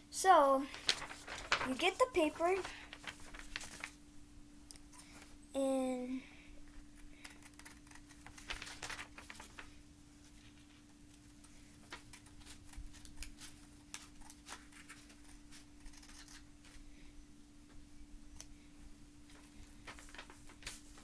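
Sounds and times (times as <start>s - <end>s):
paper rustling: 0.2s - 4.0s, 7.3s - 16.8s, 19.3s - 21.0s.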